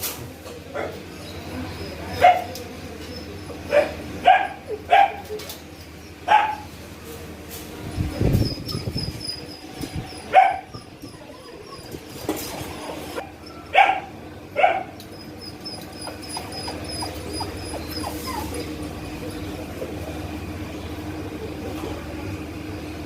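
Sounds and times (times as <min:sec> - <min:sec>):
small dog yipping: 0:02.1 - 0:05.5, 0:08.5 - 0:18.9.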